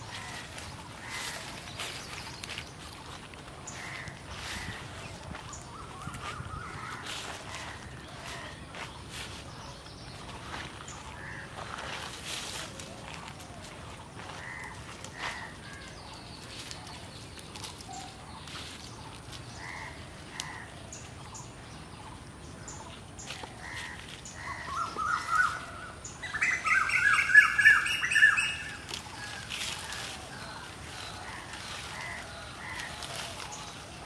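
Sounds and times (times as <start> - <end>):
birds squawking harshly: 0.0 - 2.6, 3.6 - 8.9, 11.1 - 12.2, 14.2 - 16.0, 19.5 - 20.8, 23.6 - 34.0
birds chirping: 0.0 - 34.0.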